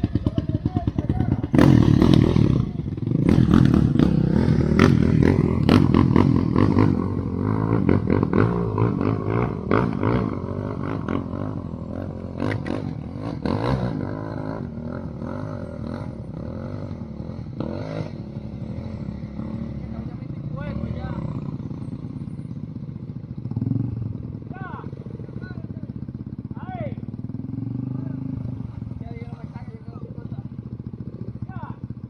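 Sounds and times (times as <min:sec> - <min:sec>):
quad engine revving: 0:00.0 - 0:22.3, 0:27.2 - 0:30.2.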